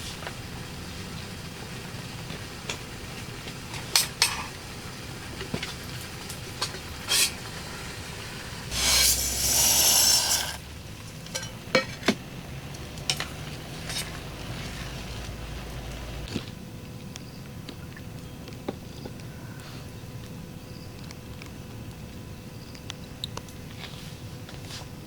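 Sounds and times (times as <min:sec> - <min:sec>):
rain hissing: 0:00.0 - 0:11.6, 0:12.3 - 0:16.3
loud hiss: 0:07.0 - 0:10.6
utensils clinking: 0:08.7 - 0:12.2.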